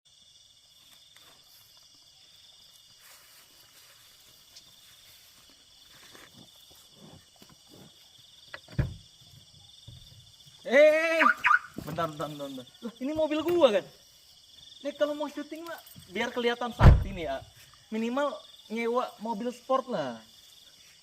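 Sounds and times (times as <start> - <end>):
insect chirring: 0.1 - 21.0
sharp thump: 16.8 - 17.2.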